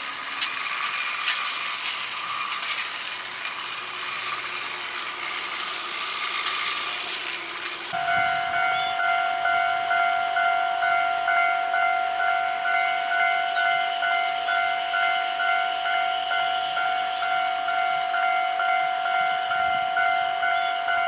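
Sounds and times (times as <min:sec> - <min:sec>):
level crossing bell ringing: 0:08.0 - 0:21.0.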